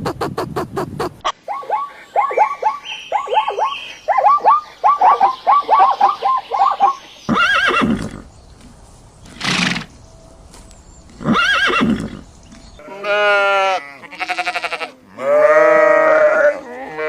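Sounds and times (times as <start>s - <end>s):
horse whinnying: 7.3s - 8.2s, 11.2s - 12.2s.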